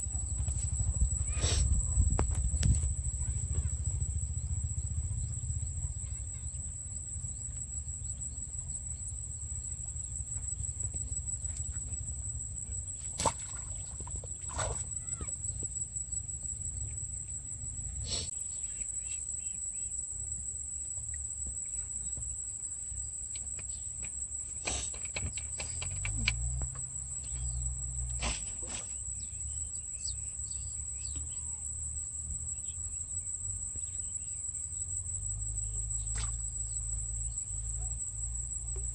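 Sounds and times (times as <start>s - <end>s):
low rumble: 0.0s - 11.0s
high-pitched insect chorus: 0.0s - 38.9s.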